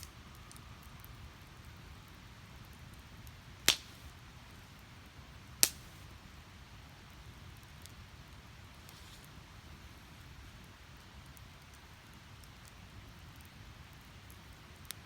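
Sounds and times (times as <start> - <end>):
firewood popping: 0.0 - 6.3, 7.0 - 10.3
faint fire crackle: 0.0 - 15.0.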